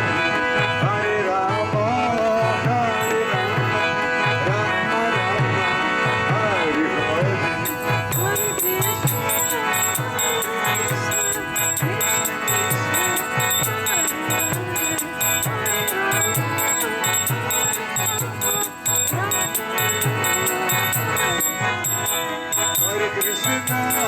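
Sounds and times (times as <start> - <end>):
hand drum beating: 7.6 - 22.1
hand cymbals ringing: 7.6 - 24.0.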